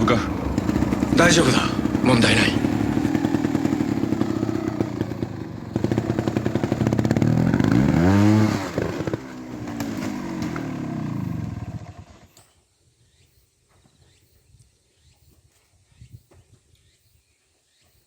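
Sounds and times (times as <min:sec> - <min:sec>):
motorcycle engine revving: 0:00.0 - 0:12.4.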